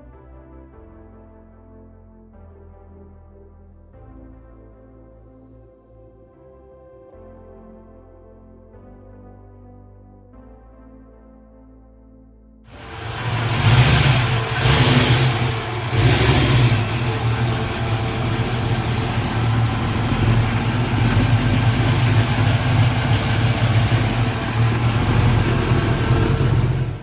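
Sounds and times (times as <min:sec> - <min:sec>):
car engine revving: 0:12.7 - 0:27.0.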